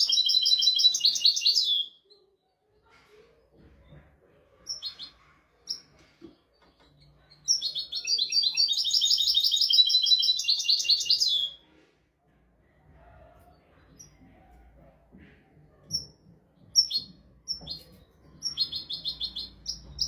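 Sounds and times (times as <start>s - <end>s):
goldfinch singing: 7.5s - 11.5s.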